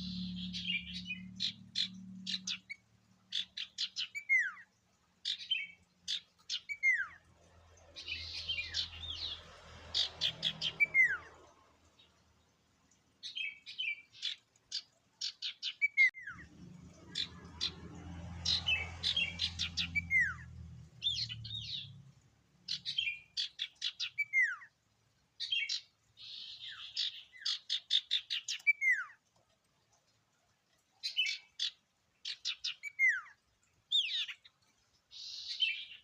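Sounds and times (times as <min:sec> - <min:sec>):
songbird chirping and whistling: 0:05.3 - 0:07.2, 0:10.3 - 0:11.3, 0:18.5 - 0:22.0, 0:22.7 - 0:24.7, 0:26.4 - 0:29.2.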